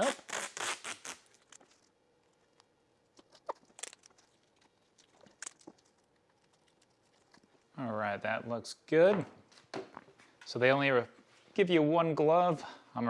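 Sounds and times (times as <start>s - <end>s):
masking tape ripping: 0.0s - 1.7s.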